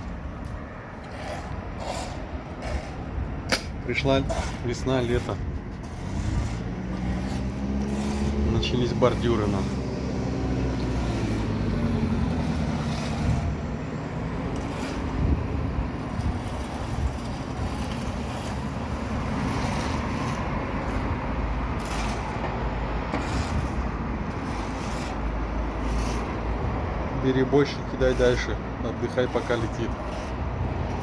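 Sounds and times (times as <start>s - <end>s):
heavy vehicle engine running: 5.8s - 16.3s.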